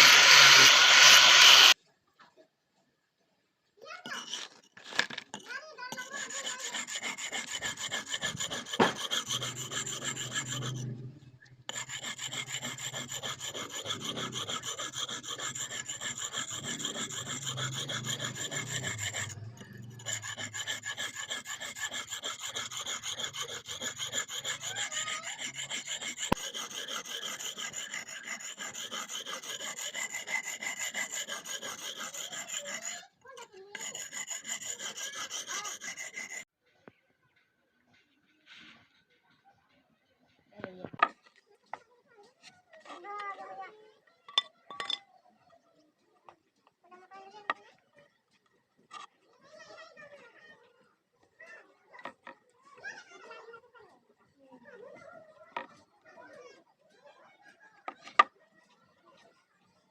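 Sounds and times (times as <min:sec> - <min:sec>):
metal blade being filed: 0:00.0 - 0:01.8, 0:04.0 - 0:04.6, 0:05.4 - 0:36.5.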